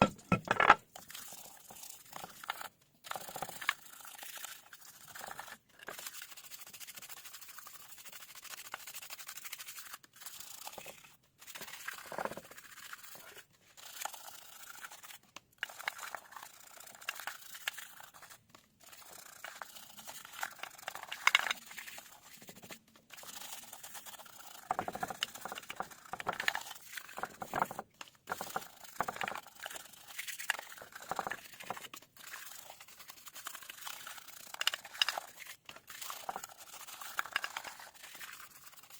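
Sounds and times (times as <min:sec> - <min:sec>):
scraping and crinkling handling noise: 0:00.0 - 0:00.9.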